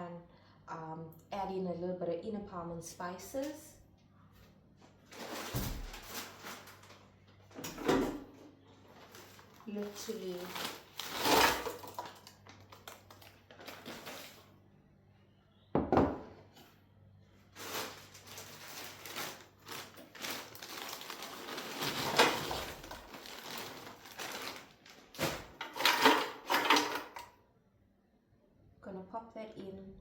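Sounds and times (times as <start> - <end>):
rustling and rattling in basket: 5.1 - 7.0, 8.8 - 14.5, 17.5 - 27.2.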